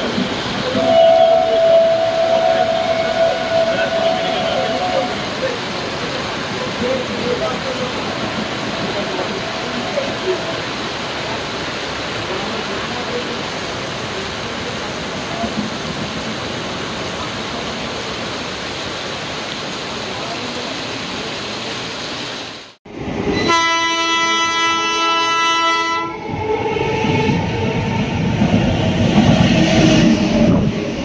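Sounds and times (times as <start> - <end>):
train rushing past: 0.0 - 17.7, 22.9 - 31.0
heavy rain hissing: 0.0 - 22.8
locomotive horn blast: 0.6 - 5.4, 23.3 - 27.5.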